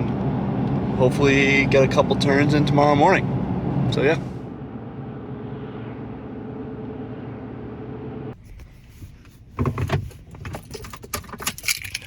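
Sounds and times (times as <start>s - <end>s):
truck engine and road hum: 0.0s - 12.0s
keys jangling: 10.6s - 12.0s.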